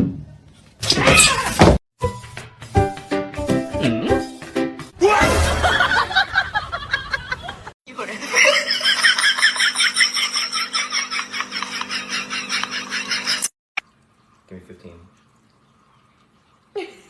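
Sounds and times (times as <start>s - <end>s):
people laughing: 5.5s - 13.5s.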